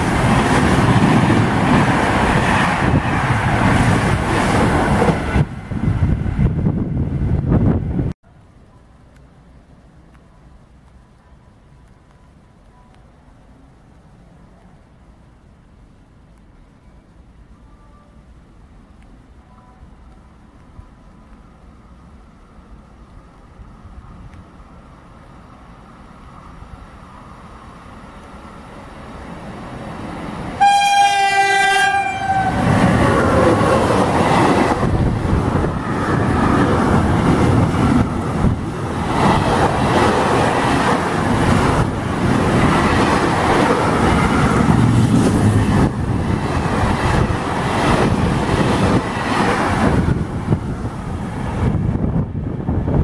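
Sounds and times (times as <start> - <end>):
freight train passing: 0.0 - 53.0
train horn blast: 30.6 - 32.8.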